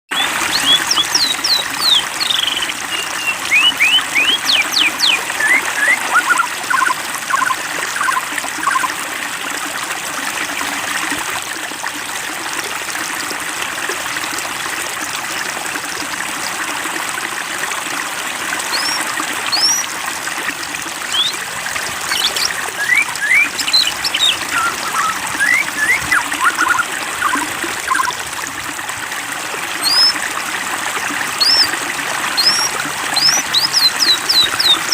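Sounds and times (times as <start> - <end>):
birds chirping: 0.1 - 8.9, 18.7 - 19.9, 21.1 - 28.2, 29.8 - 30.2, 31.4 - 31.7, 32.3 - 34.9
water trickling and splashing: 0.1 - 34.9.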